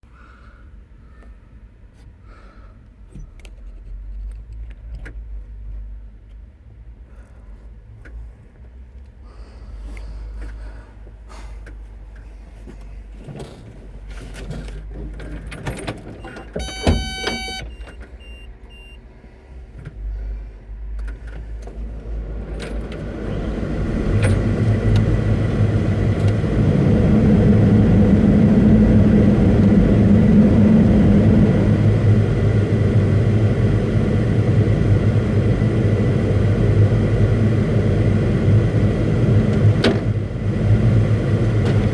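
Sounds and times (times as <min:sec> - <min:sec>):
excavator diesel engine running: 0:16.2 - 0:18.9, 0:21.5 - 0:41.9
short electronic beep: 0:16.6 - 0:19.0.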